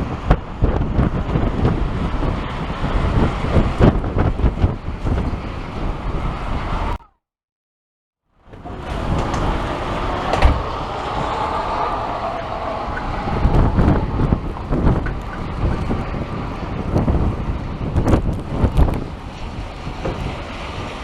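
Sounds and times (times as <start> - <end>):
gusty wind buffeting microphone: 0.0 - 7.0, 8.4 - 21.0
low rumbles: 8.4 - 21.0.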